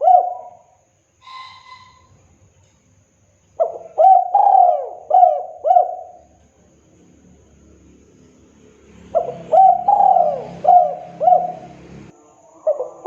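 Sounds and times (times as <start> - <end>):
dove cooing: 0.0 - 2.2, 3.6 - 6.4, 9.1 - 13.0
faint short whistle-like note: 1.2 - 2.2.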